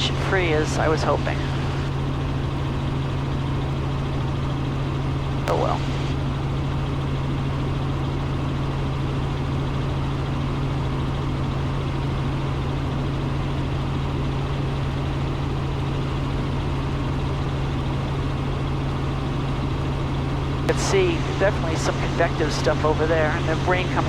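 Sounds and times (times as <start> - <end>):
helicopter engine and rotors droning: 0.0 - 24.0.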